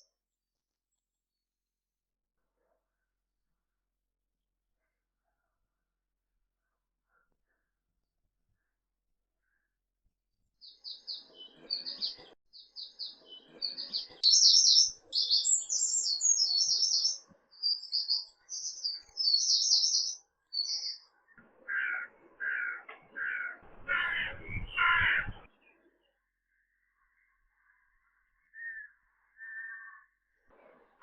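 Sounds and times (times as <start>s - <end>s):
songbird chirps and trills: 10.6s - 30.6s
larger bird repeated calls: 21.7s - 25.5s.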